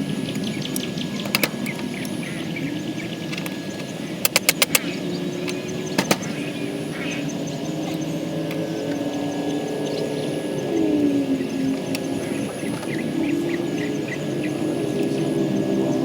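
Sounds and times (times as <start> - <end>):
steady low droning hum: 4.8 - 16.0.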